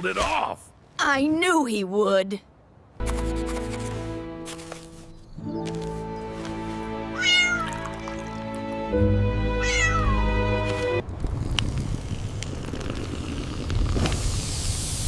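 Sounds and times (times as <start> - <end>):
background music: 3.0 - 11.0
cat meowing: 7.1 - 8.3, 9.6 - 10.4.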